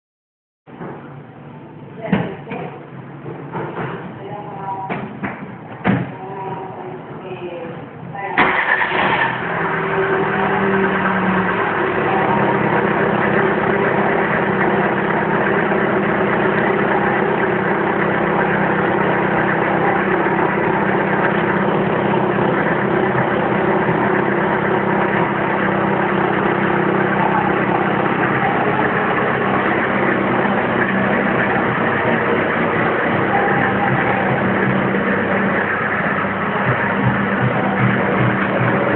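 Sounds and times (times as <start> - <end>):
car engine idling: 8.4 - 38.9.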